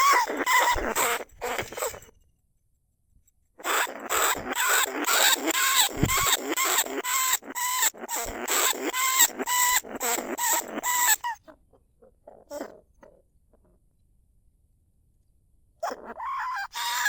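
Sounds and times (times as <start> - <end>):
rat squealing chirps: 0.0 - 2.1, 3.6 - 11.6, 15.8 - 17.0
faint squeaks: 0.0 - 2.3, 3.6 - 11.6.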